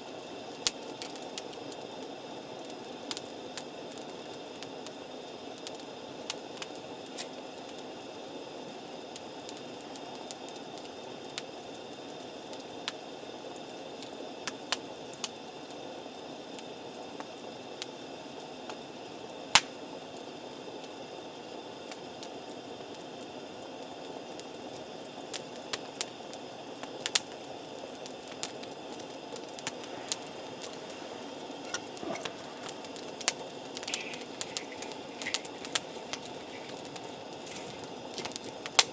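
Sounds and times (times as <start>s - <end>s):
campfire crackling and popping: 19.5s - 19.8s, 25.3s - 38.9s
fire hissing: 26.0s - 38.9s.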